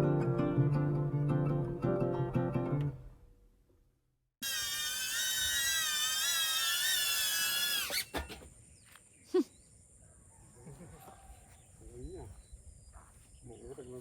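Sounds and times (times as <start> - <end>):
small motor whining and spinning down: 4.4 - 8.4.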